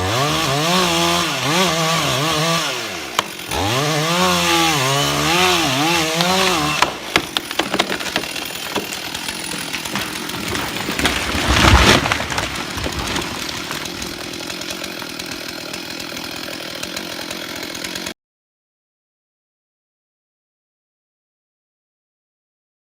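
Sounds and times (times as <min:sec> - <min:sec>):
chainsaw running under load: 0:00.0 - 0:18.2
wood cracking: 0:00.1 - 0:18.1
heavy crash: 0:09.9 - 0:14.0.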